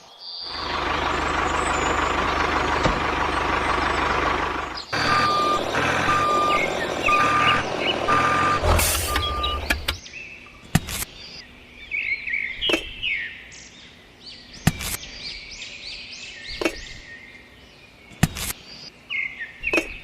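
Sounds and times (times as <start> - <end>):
vehicle engine running: 0.5 - 10.0
reversing alarm beeping: 4.9 - 9.9.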